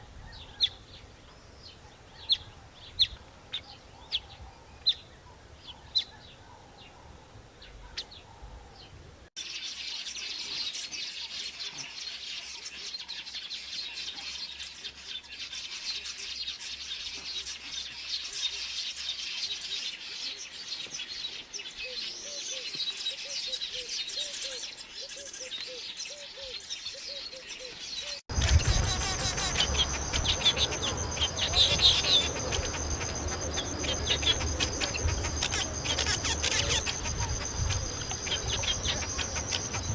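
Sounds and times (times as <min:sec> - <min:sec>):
wild birds chirping: 0:00.0 - 0:39.9
high insect whine: 0:28.3 - 0:39.9
insects buzzing: 0:28.3 - 0:39.9.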